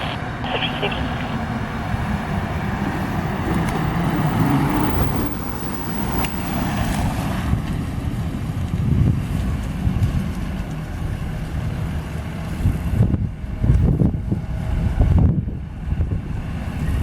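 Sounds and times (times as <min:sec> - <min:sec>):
vehicle engine rumble: 0:00.0 - 0:17.0
wind buffeting microphone: 0:08.4 - 0:10.6, 0:12.5 - 0:17.0.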